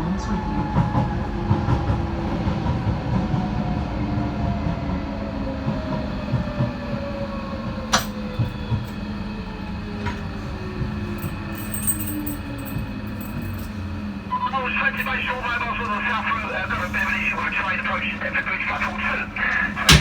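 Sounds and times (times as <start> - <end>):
train rumbling on track: 0.0 - 20.0
train motor whine: 5.6 - 20.0.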